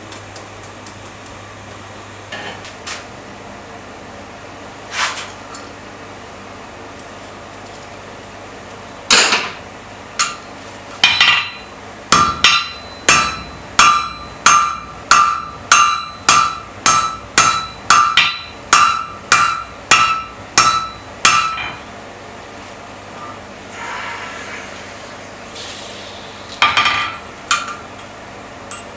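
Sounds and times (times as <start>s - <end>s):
hammer striking iron on anvil: 11.0s - 22.0s, 26.6s - 27.8s.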